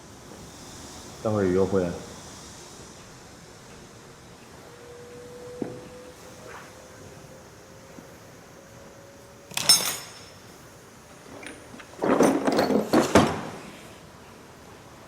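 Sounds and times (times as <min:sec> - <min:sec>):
objects clattering: 0:09.5 - 0:10.4, 0:11.3 - 0:13.7
knocks and rattles: 0:11.3 - 0:13.6.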